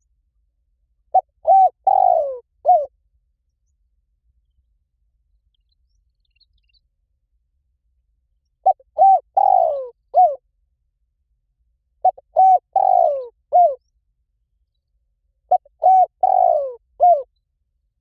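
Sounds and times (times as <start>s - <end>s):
dove cooing: 1.1s - 2.9s, 8.6s - 10.4s, 12.0s - 13.8s, 15.5s - 17.3s.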